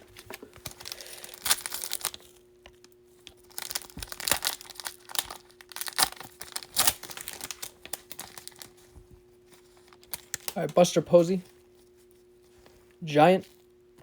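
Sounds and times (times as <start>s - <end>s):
cards rustling: 0.0s - 2.4s, 3.3s - 11.5s
wrapper crinkling: 0.0s - 13.8s
faint steady hum: 0.0s - 14.0s.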